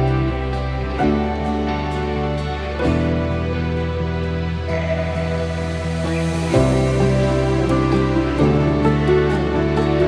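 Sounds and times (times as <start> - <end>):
soft instrumental music: 0.0 - 10.0.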